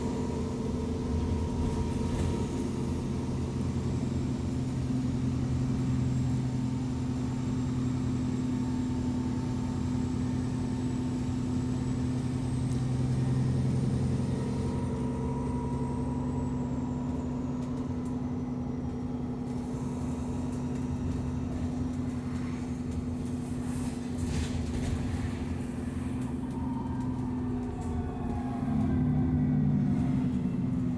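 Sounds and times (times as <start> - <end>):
bus engine running: 0.0 - 30.9.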